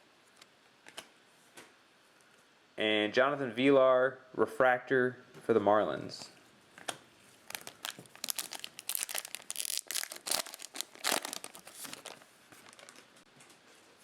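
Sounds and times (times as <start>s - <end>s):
plastic wrapper tearing and crinkling: 7.4s - 13.2s.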